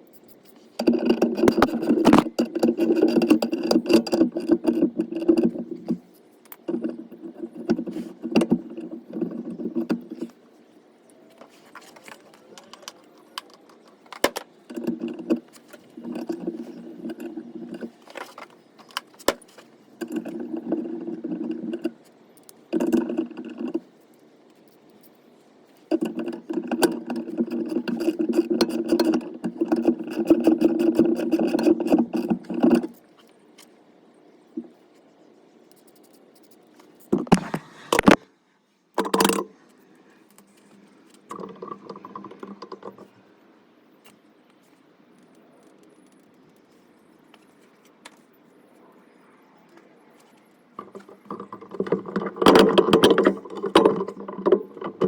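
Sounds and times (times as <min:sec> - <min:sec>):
metallic clicking and rattling: 0:25.9 - 0:33.0, 0:41.2 - 0:43.1, 0:50.8 - 0:55.0.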